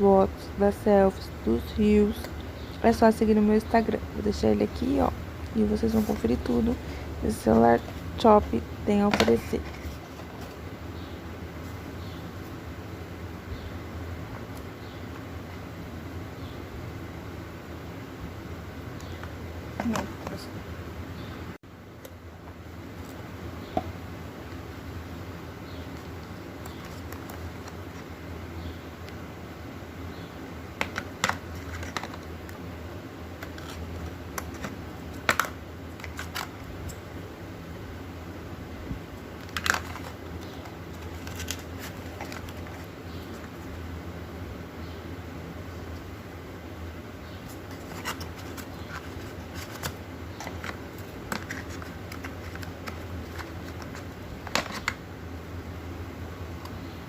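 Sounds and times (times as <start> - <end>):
steady low hum: 0.0 - 57.0
hands handling smartphone packaging: 25.9 - 28.1, 30.7 - 32.6, 33.3 - 36.7, 39.2 - 43.7, 47.4 - 55.0.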